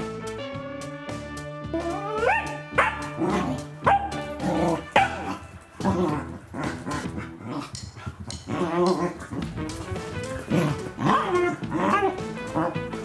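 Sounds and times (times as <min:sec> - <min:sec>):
dog barking and yipping: 0:01.8 - 0:05.5, 0:10.2 - 0:12.9.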